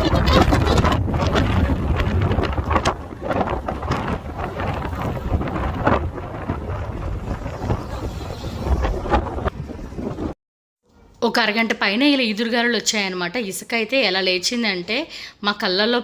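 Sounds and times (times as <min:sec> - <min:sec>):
strong wind blasting microphone: 0:00.0 - 0:10.4.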